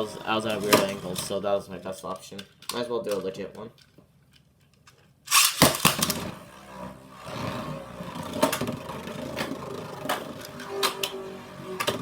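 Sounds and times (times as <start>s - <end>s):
spinning top launch rip: 5.3s - 12.0s
spinning top whirring rattle: 5.3s - 12.0s.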